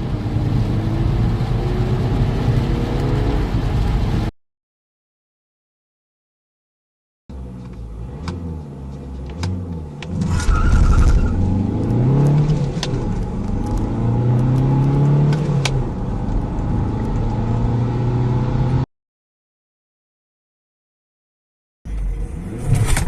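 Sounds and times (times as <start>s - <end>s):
car engine accelerating: 0.0s - 4.3s, 7.3s - 18.9s.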